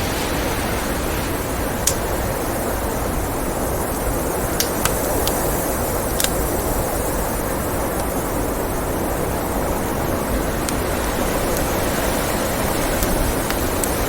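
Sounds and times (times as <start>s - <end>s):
blizzard wind blowing: 0.0s - 14.0s
wood fire crackling pops: 1.8s - 2.5s, 4.4s - 14.0s.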